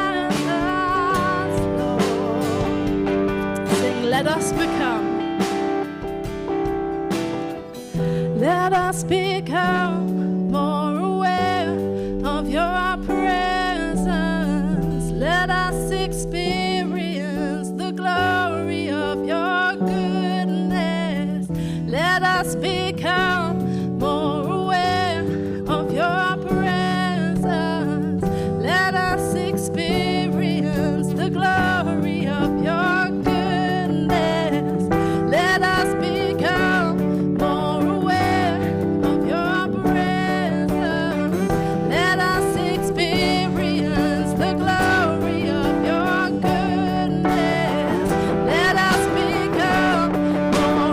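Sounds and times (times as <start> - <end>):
person singing: 0.0 - 6.1, 7.6 - 50.9
strummed acoustic guitar: 0.0 - 17.2, 19.6 - 50.9
bass line: 0.0 - 50.9
sustained chords: 11.6 - 17.0.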